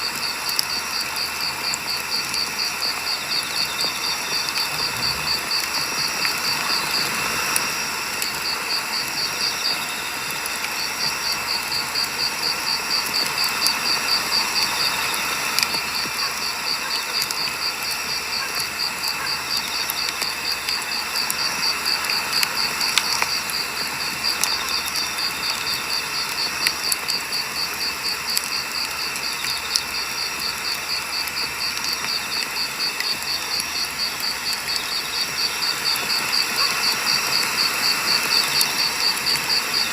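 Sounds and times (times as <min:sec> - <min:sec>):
firewood crackling and popping: 0:00.0 - 0:39.9
insect chirping: 0:00.0 - 0:39.9.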